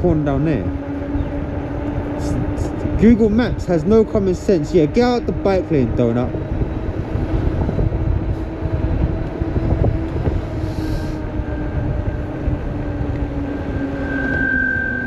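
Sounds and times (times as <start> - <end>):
electric bike motor hum: 0.0 - 15.0
wind: 0.0 - 15.0
disc brakes squealing: 13.4 - 15.0.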